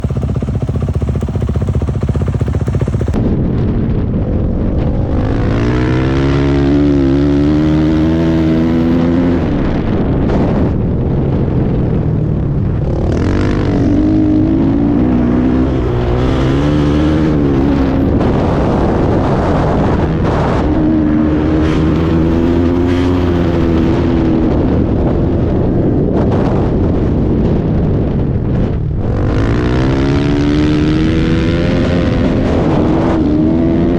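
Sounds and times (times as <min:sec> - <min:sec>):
dirt bike engine revving: 0:00.0 - 0:03.2, 0:05.2 - 0:09.7, 0:12.8 - 0:24.3, 0:29.1 - 0:33.9
wind rush: 0:00.0 - 0:33.9.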